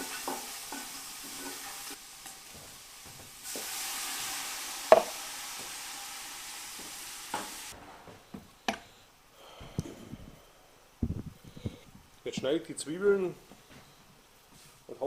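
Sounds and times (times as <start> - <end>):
sausages and bacon sizzling in a pan: 0.0 - 7.8.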